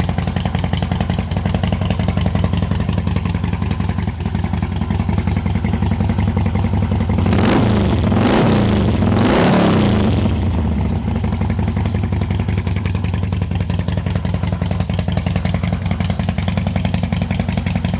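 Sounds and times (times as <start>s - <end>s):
motorcycle engine idling and revving: 0.0s - 17.9s.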